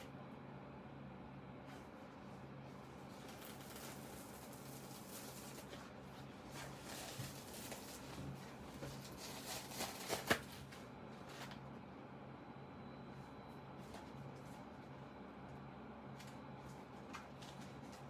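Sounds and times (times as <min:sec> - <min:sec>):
book cover rustling and scraping: 0:03.0 - 0:11.6.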